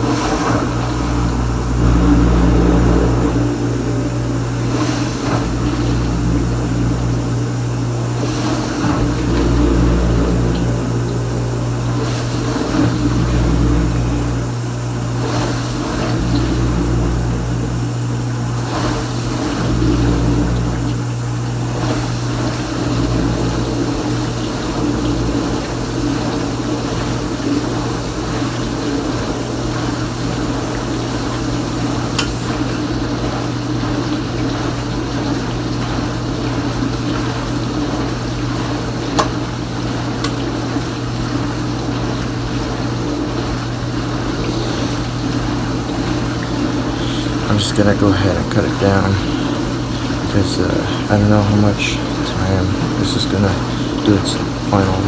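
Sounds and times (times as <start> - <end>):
low rumble: 0.0 - 18.7, 19.3 - 28.0
dishwasher pump humming: 0.0 - 55.0
water spraying inside dishwasher: 0.0 - 55.0.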